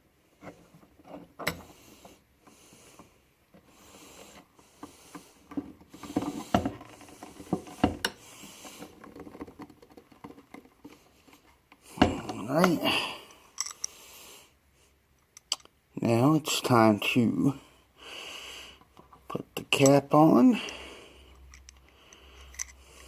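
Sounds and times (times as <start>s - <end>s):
small metal parts clicking: 13.5s - 14.0s, 21.4s - 23.0s.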